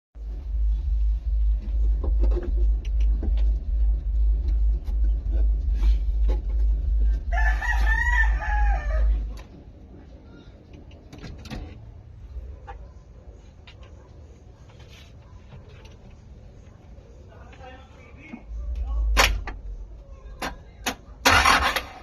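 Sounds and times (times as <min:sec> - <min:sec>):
loud low pulsing rumble: 0:00.2 - 0:09.8
rooster crowing: 0:07.2 - 0:09.4.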